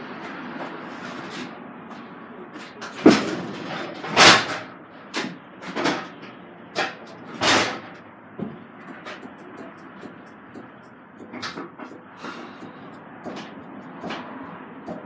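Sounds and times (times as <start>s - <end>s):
sharp bangs and clattering knocks: 3.0s - 15.0s.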